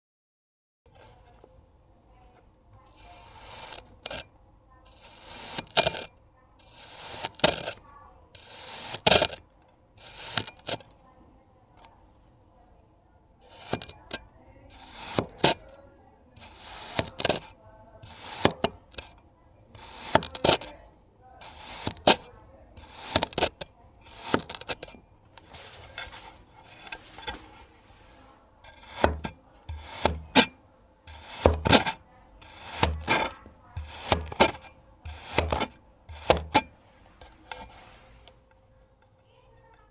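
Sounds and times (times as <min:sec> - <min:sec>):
blade cutting gritty sand: 0:02.9 - 0:04.3, 0:04.9 - 0:09.4, 0:10.0 - 0:10.9, 0:13.4 - 0:15.8, 0:16.4 - 0:20.8, 0:21.4 - 0:38.3.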